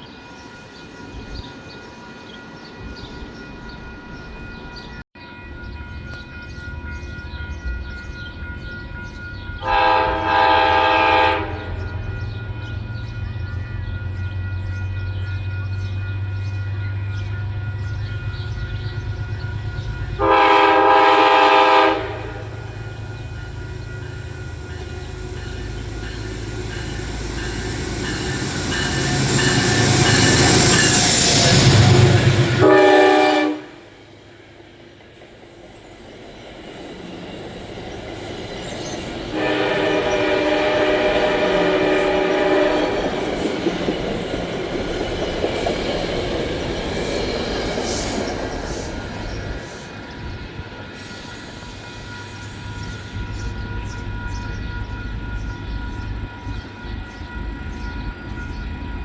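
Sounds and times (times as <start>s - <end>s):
train passing rumble: 0.0s - 59.0s
train horn blasts: 9.6s - 12.1s, 20.2s - 22.8s, 29.2s - 34.0s, 39.2s - 43.3s.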